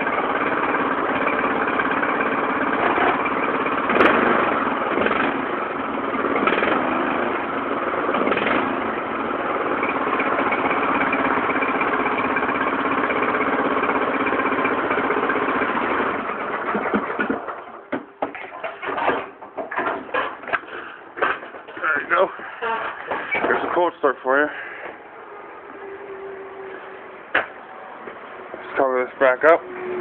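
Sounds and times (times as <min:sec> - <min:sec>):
small engine running: 0:00.0 - 0:17.6, 0:28.0 - 0:30.0.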